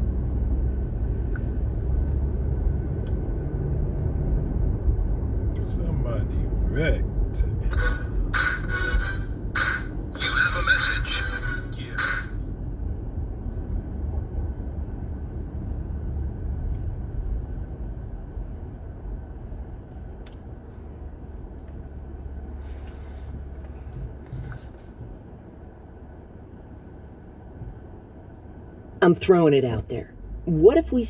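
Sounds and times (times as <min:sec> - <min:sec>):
car road and engine rumble: 0:00.0 - 0:31.0
brief hisses: 0:22.6 - 0:23.4.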